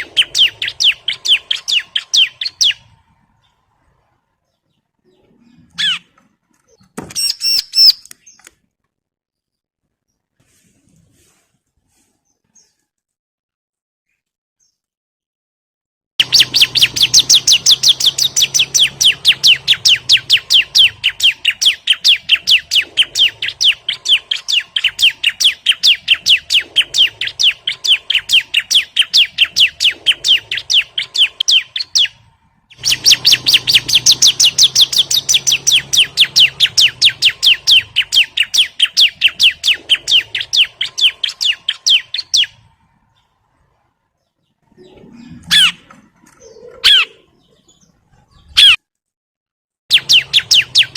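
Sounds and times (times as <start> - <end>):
bird chirping sharp high calls: 0.0 - 3.6, 5.1 - 8.5, 16.2 - 43.3, 44.8 - 48.8, 49.9 - 50.9.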